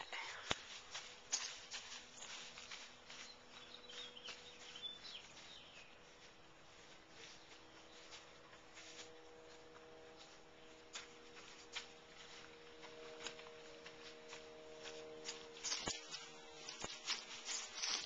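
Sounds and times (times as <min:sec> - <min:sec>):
faint steady hum: 0:00.0 - 0:18.0
bird chirps: 0:03.2 - 0:06.0.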